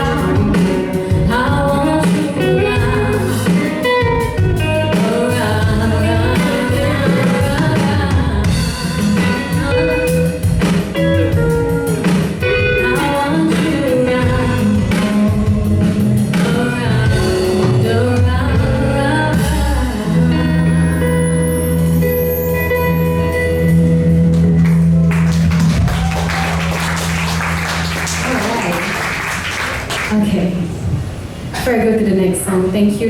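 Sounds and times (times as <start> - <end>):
woman singing: 0.0 - 10.5, 12.8 - 21.3
drum kit: 0.0 - 20.3, 23.4 - 29.9
bass guitar: 0.0 - 29.4
guitar: 0.0 - 29.9.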